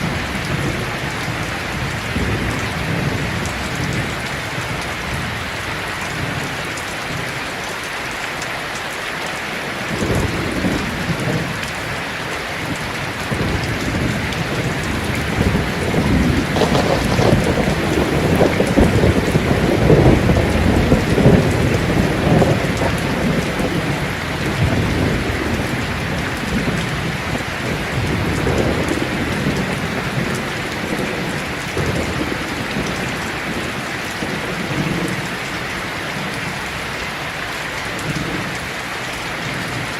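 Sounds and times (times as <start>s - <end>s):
thunder rumbling: 0.0s - 6.6s, 12.6s - 36.9s
heavy rain on a tin roof: 0.0s - 39.9s.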